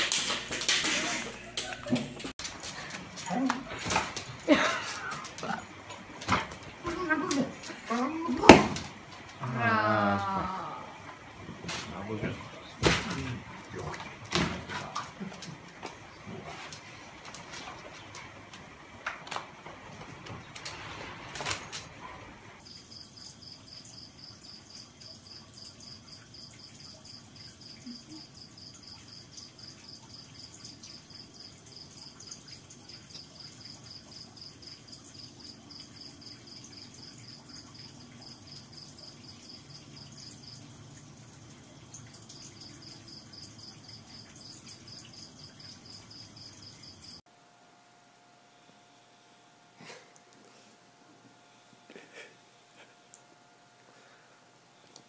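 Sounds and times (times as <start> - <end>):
cricket chirping: 22.6 - 47.2.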